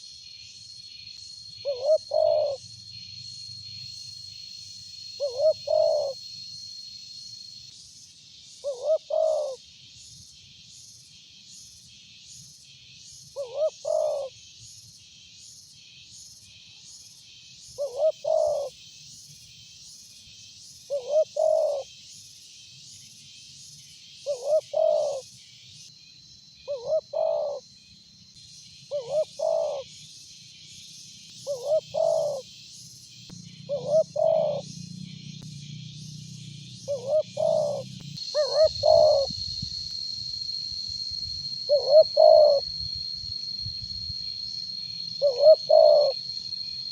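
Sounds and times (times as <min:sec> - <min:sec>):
dove cooing: 0:01.6 - 0:02.6, 0:05.2 - 0:06.2, 0:08.6 - 0:09.6, 0:13.4 - 0:14.3, 0:17.8 - 0:18.7, 0:20.9 - 0:21.8, 0:24.3 - 0:25.2, 0:26.7 - 0:27.6, 0:28.9 - 0:29.8, 0:31.5 - 0:32.4, 0:33.6 - 0:34.8, 0:36.9 - 0:39.4, 0:41.7 - 0:42.7, 0:45.2 - 0:46.2
high fast-pulsing buzz: 0:33.0 - 0:46.9.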